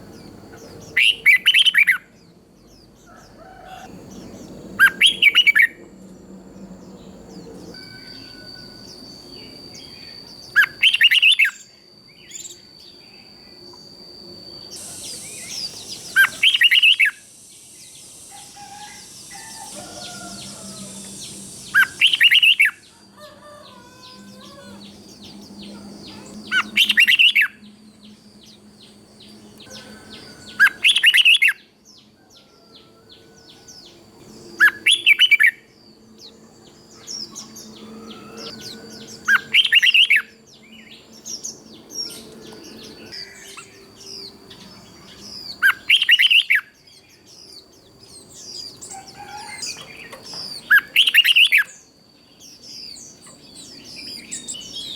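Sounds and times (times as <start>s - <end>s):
thin steady high tone: 3.8s - 54.9s
soft bird chirps: 6.5s - 54.9s
bird singing chirpy phrase: 14.5s - 31.7s.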